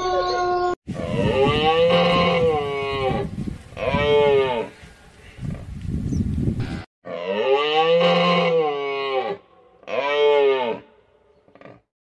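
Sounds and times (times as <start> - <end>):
cattle mooing: 7.1 - 10.9.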